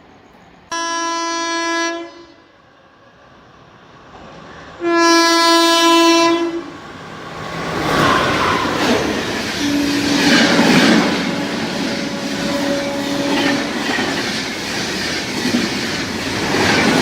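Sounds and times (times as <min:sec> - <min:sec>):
train rushing past: 0:00.0 - 0:17.0
train horn blasts: 0:00.7 - 0:02.5, 0:04.8 - 0:06.7, 0:09.6 - 0:14.1.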